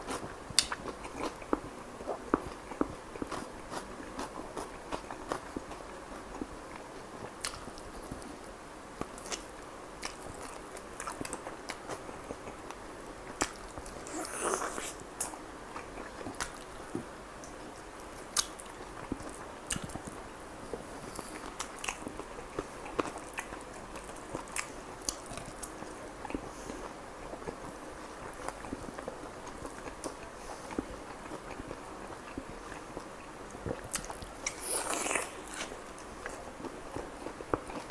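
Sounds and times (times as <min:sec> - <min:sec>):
person chewing food: 0:00.0 - 0:07.8, 0:09.1 - 0:17.6, 0:28.2 - 0:37.9.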